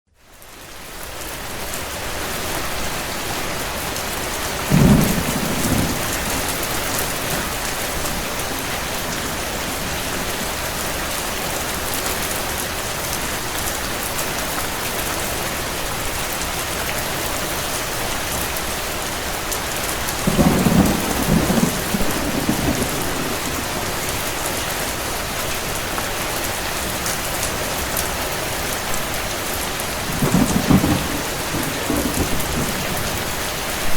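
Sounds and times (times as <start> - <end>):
steady rain: 0.1 - 33.9
thunder rolling: 4.5 - 11.9, 20.2 - 24.5, 30.0 - 33.9.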